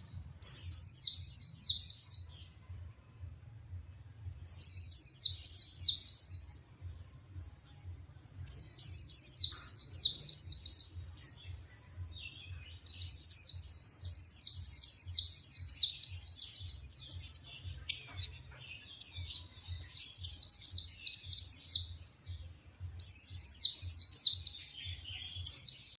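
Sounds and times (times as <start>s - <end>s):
bird twittering: 8.5s - 26.0s.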